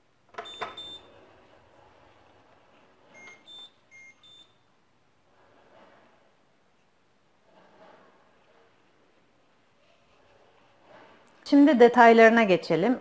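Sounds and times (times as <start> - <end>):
coffee machine beeps: 0.4 - 1.2, 3.1 - 4.7.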